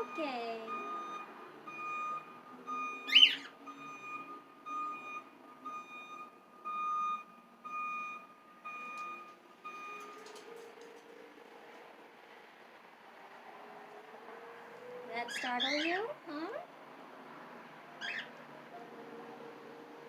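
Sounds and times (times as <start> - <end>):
electronic alarm beeping: 0.0 - 10.3
bird screech: 3.1 - 3.5, 18.0 - 18.4.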